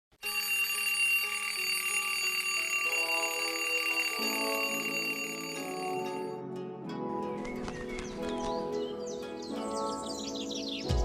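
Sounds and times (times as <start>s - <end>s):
bell-like ringing tone: 0.2s - 6.4s.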